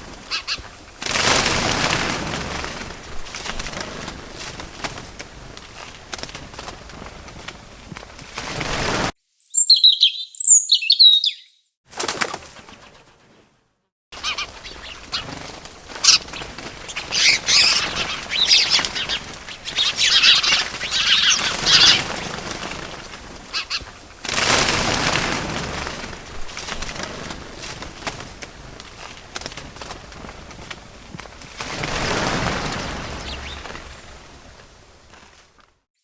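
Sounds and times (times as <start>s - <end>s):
small birds chirping: 0.0s - 1.0s, 9.2s - 11.8s, 14.2s - 24.3s, 28.4s - 34.6s
wings flapping: 0.0s - 9.1s, 11.9s - 13.5s, 14.2s - 35.8s.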